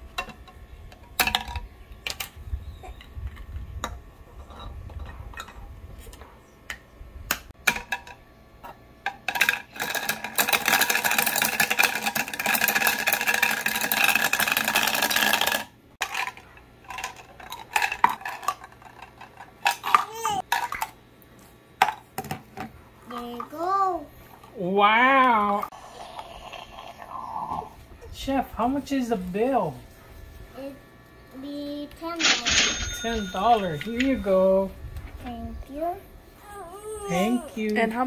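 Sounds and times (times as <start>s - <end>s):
plastic toy pieces clattering: 9.3s - 21.0s
toy blender whirring: 9.4s - 16.3s.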